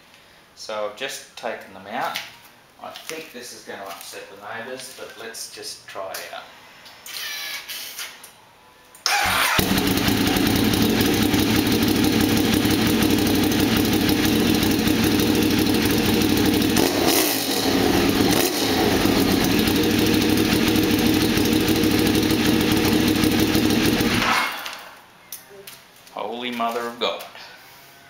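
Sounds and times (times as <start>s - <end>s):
motorcycle engine starting: 9.1s - 24.6s
motorcycle engine idling loudly: 9.6s - 24.3s.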